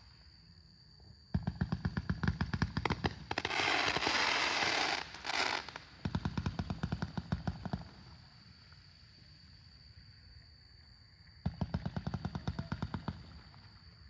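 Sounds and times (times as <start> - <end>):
firework sharp reports: 2.9 - 6.0
firework hissing rush: 3.4 - 5.8.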